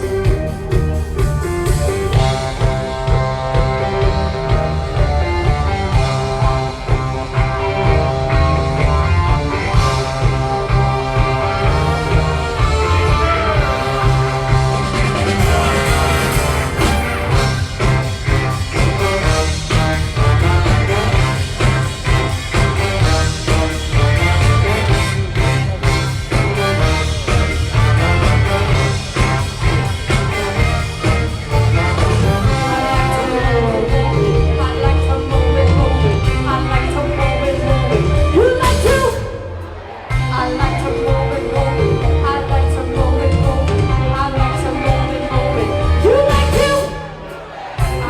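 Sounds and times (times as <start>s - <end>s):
regular drum beat: 0.0s - 39.2s
big band playing: 0.0s - 48.0s
heavy bass: 0.0s - 48.0s
person singing: 31.5s - 48.0s.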